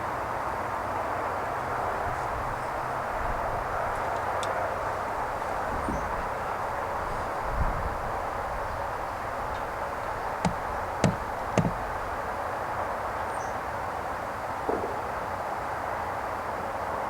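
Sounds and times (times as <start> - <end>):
outdoor background hiss: 0.0 - 17.0
light knocks: 9.5 - 12.2.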